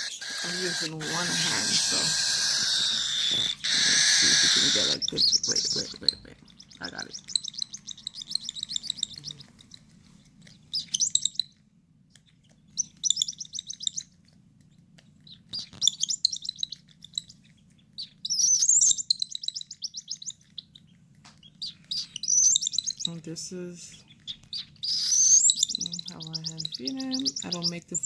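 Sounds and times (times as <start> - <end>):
bird chick begging calls: 0.0 - 9.7, 21.4 - 23.3, 23.9 - 28.0.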